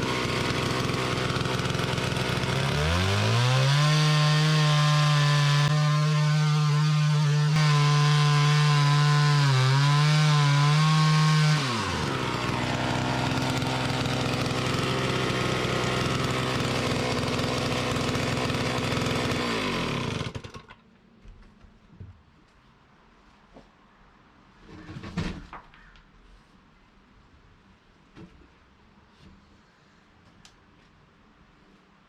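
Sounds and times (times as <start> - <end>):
chainsaw running: 0.0 - 20.8.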